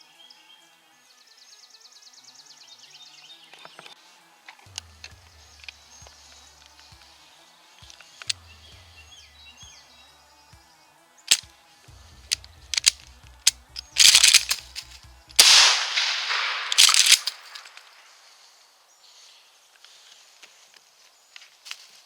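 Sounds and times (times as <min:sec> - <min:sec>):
sharp gun clicks: 0:12.3 - 0:18.0
shotgun blast: 0:15.4 - 0:18.1.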